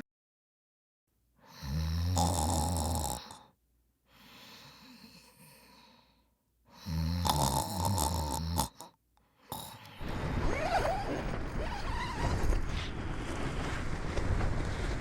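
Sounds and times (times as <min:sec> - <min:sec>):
person snoring: 0:01.5 - 0:03.6, 0:04.2 - 0:06.1, 0:06.7 - 0:10.0
quiet breath: 0:03.1 - 0:07.1, 0:08.7 - 0:10.1.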